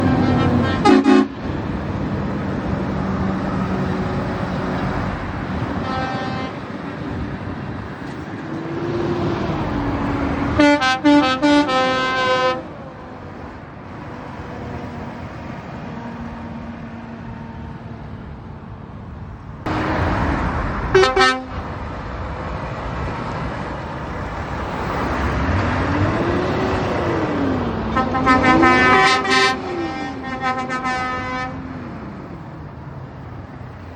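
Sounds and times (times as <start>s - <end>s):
truck horn blasts: 0.0s - 1.4s, 5.8s - 6.7s, 10.5s - 12.7s, 20.9s - 21.7s, 27.9s - 31.7s
truck engines revving: 0.0s - 33.9s.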